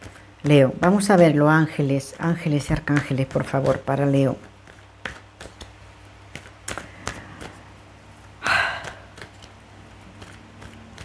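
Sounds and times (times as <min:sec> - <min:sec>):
cards being handled: 0:02.4 - 0:11.0
breathy sigh: 0:08.4 - 0:09.1.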